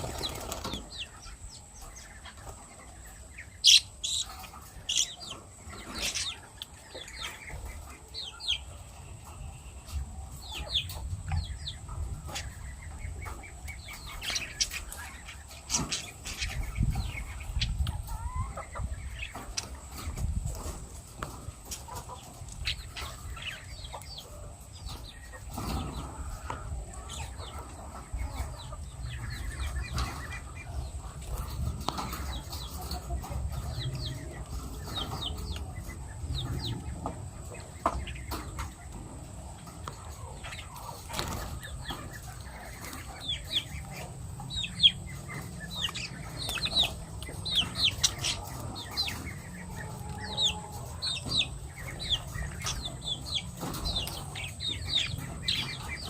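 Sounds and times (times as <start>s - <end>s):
lovebirds chirping: 0.0s - 26.3s, 39.8s - 56.0s.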